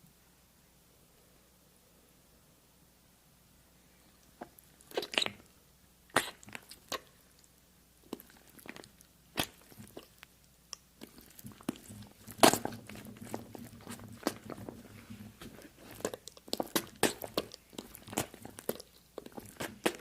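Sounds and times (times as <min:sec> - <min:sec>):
crunchy biting and chewing: 0:04.4 - 0:05.5, 0:06.1 - 0:07.5, 0:08.1 - 0:20.0.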